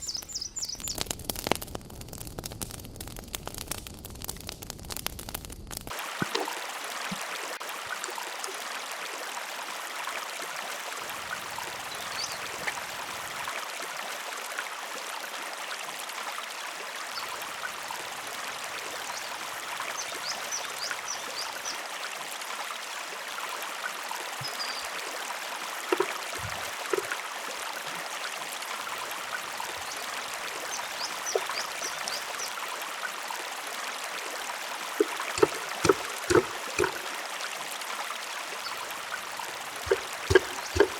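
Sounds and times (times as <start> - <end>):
river water rushing: 25.4 - 28.1, 34.6 - 38.2, 39.2 - 40.9
sharp knocks: 35.4 - 37.1, 39.9 - 40.9.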